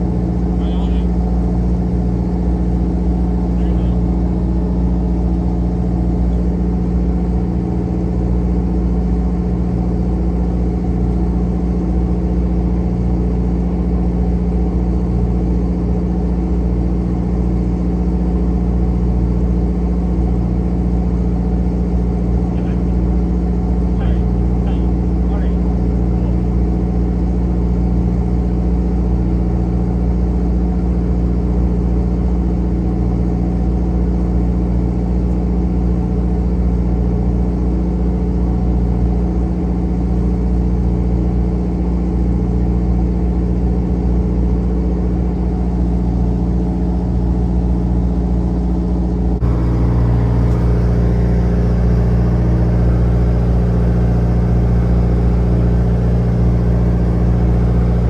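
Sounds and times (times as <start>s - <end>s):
boat engine droning: 0.0s - 30.6s, 33.2s - 58.0s.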